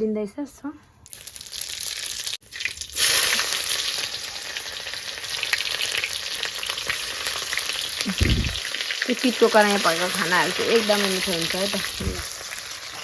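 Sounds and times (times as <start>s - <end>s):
oil crackling and spitting: 1.1s - 9.1s
vegetables sizzling in hot oil: 1.1s - 13.0s.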